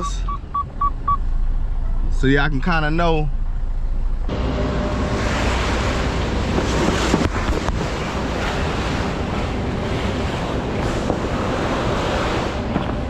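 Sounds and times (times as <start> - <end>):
truck diesel engine running: 0.0 - 13.0
wind buffeting microphone: 3.4 - 13.0.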